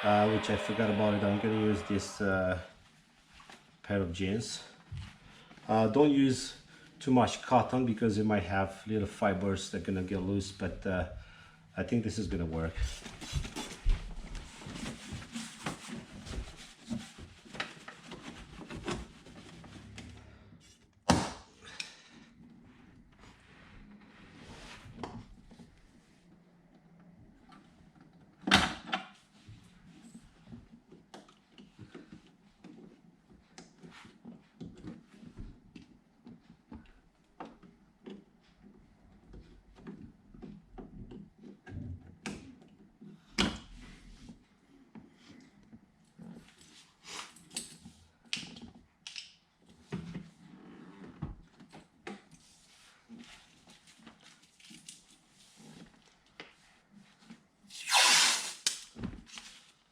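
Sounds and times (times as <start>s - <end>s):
cloth scrubbing sheet metal: 0.0s - 2.5s, 57.7s - 58.7s.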